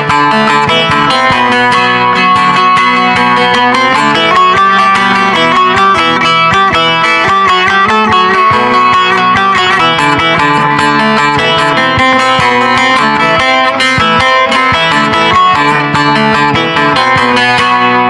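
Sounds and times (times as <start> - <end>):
plucked lute notes: 0.0 - 18.0.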